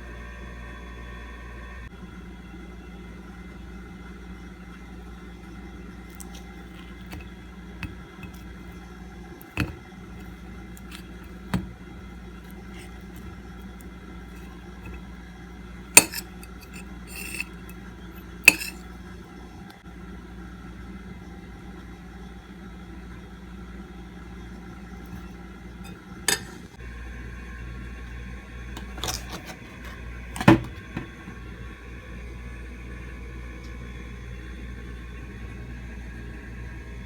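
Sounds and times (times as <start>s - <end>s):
steady low hum: 0.0s - 37.0s
tableware clinking: 16.0s - 17.8s, 18.5s - 18.8s, 25.9s - 26.6s.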